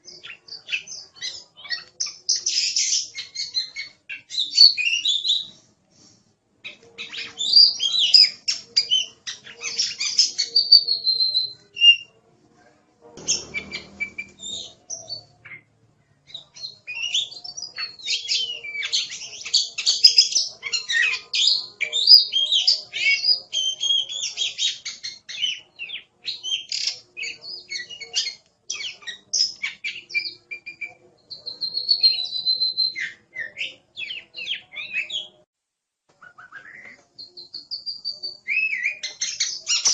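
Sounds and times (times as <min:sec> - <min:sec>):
bird singing whistles and trills: 0:00.1 - 0:05.5, 0:07.0 - 0:12.2, 0:16.3 - 0:35.4, 0:36.2 - 0:39.9
low rumbling noise: 0:13.2 - 0:16.0.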